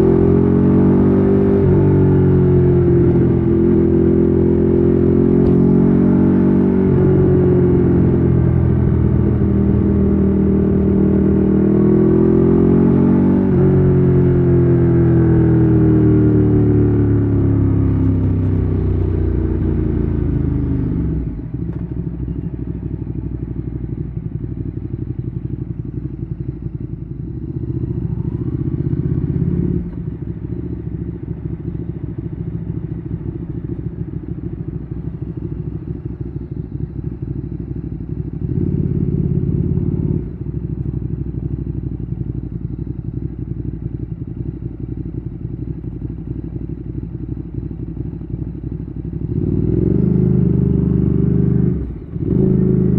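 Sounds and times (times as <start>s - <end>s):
motorcycle engine: 0.0s - 52.9s.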